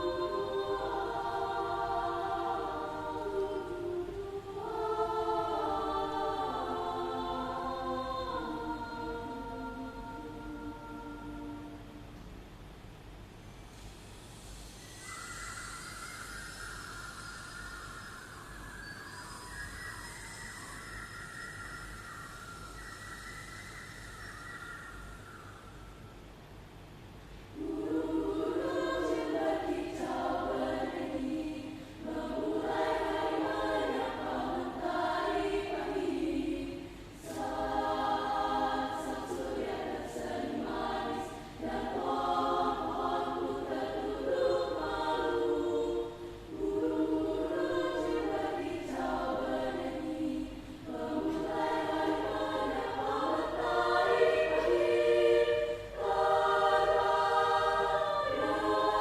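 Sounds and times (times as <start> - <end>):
choir singing: 0.0 - 12.2, 27.5 - 59.0.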